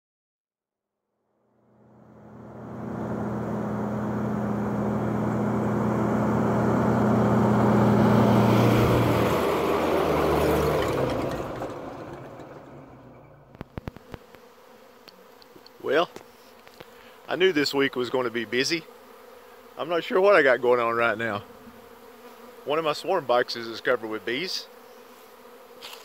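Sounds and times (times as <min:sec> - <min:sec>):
vehicle engine humming: 0:01.5 - 0:14.4.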